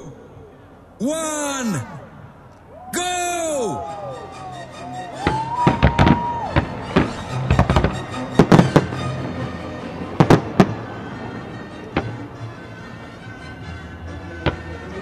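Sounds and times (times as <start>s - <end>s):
music playing: 3.0s - 15.0s
fireworks bursting: 5.1s - 12.3s.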